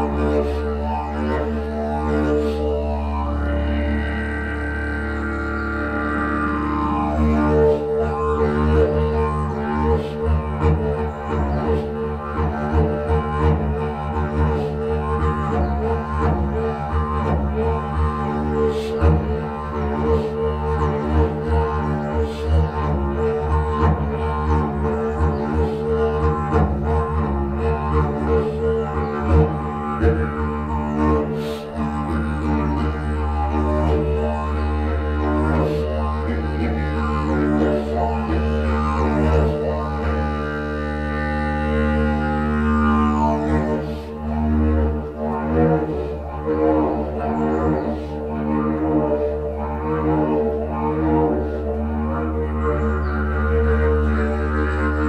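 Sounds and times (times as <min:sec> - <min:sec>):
didgeridoo drone: 0:00.0 - 0:55.0.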